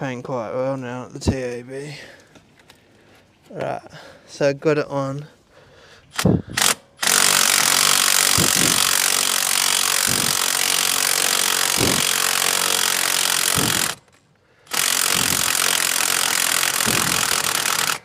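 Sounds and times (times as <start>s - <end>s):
power drill running: 6.6s - 14.1s, 14.7s - 18.0s.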